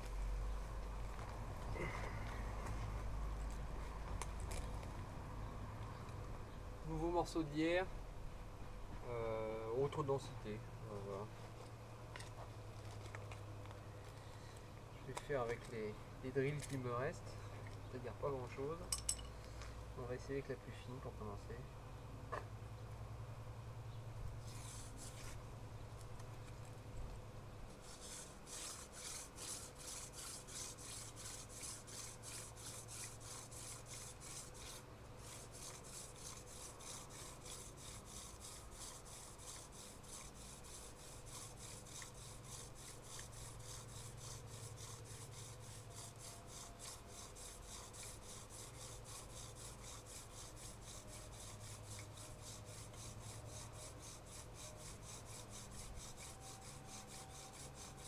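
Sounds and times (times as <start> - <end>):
wooden spindle grinding on board: 24.4 - 25.4, 27.8 - 58.0.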